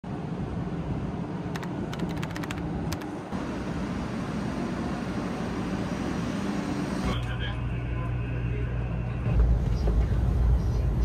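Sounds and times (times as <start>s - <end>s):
train equipment humming: 0.4s - 11.0s.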